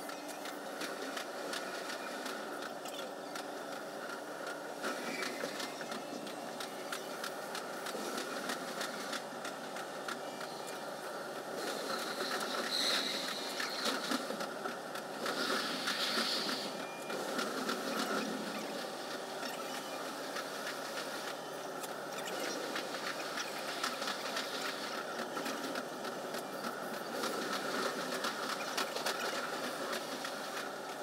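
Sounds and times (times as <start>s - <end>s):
train hum: 0.0s - 31.0s
high-pitched hissing squeals: 12.7s - 13.8s.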